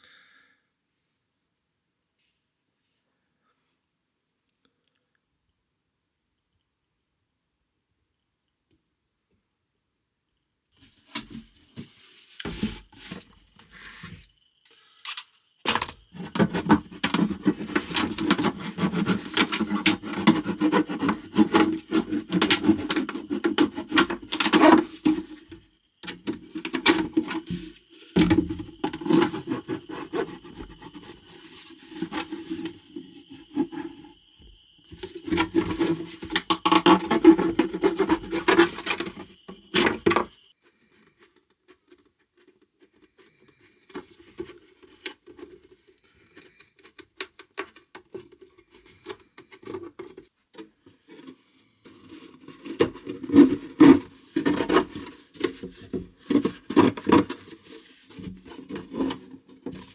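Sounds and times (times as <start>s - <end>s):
rubbing and scraping: 10.8s - 14.4s, 15.7s - 40.5s, 41.1s - 59.9s
plastic container being cut: 15.7s - 25.4s, 28.2s - 34.1s.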